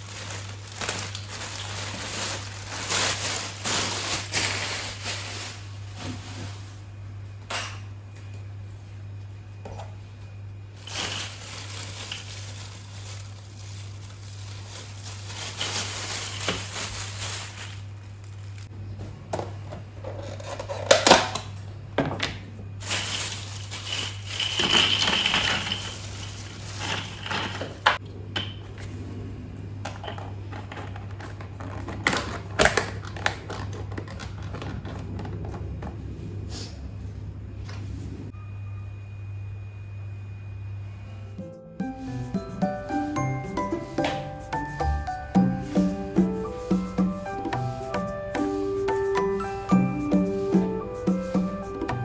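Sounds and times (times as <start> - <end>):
household items clattering: 0.0 - 6.8, 10.8 - 18.7, 19.4 - 28.8, 29.9 - 36.0
low hum: 34.6 - 42.5.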